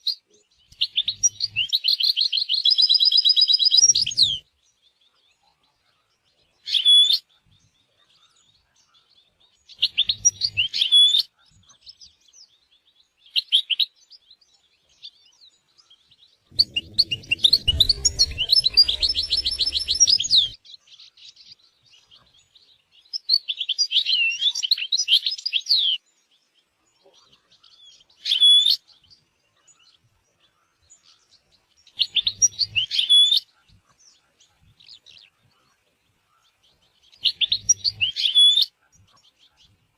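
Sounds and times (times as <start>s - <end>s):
finch twittering and trilling: 0.1s - 4.5s, 6.0s - 11.8s, 15.3s - 21.1s, 27.2s - 39.9s
low rumble: 16.5s - 20.6s.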